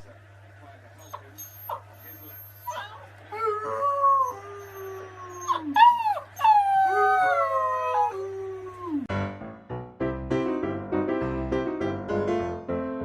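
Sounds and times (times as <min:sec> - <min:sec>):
dog howling: 0:01.1 - 0:09.1.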